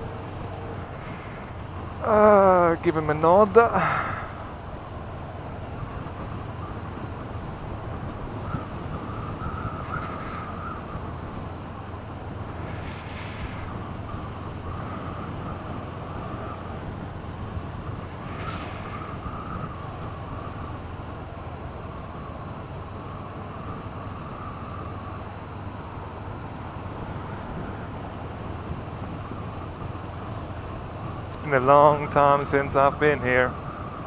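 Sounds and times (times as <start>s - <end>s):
wind noise on microphone: 5.4s - 11.6s, 12.4s - 20.9s
brief high hiss: 12.7s - 13.7s, 18.3s - 19.1s.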